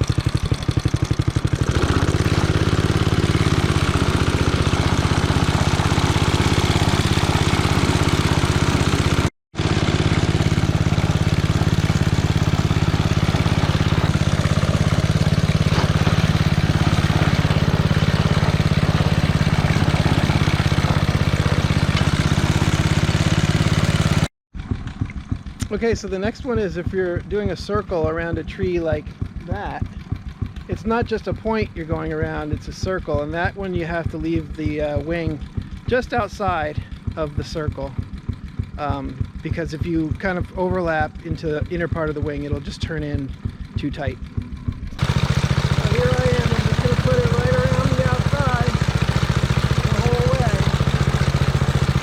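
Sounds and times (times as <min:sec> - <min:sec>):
reel mower engine running: 0:00.0 - 0:52.0.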